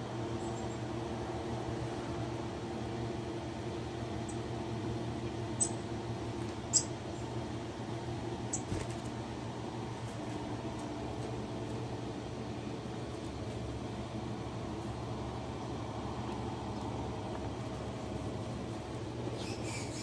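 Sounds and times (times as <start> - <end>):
low mechanical hum: 0.0 - 20.0
small birds chirping: 0.3 - 1.0, 4.2 - 4.5, 5.2 - 6.0, 6.6 - 7.5, 8.4 - 9.0, 19.2 - 20.0.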